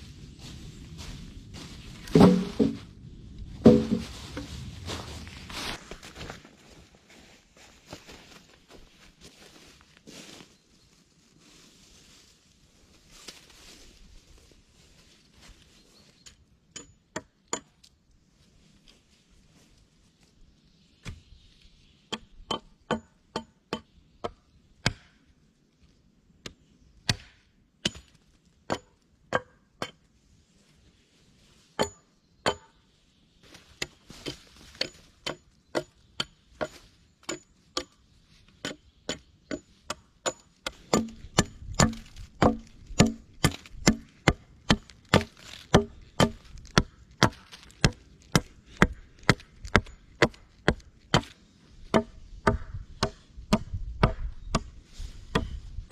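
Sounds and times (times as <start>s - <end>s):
hand tool chopping wood: 2.1s - 2.8s, 3.6s - 4.0s, 38.6s - 54.7s, 55.3s - 55.9s.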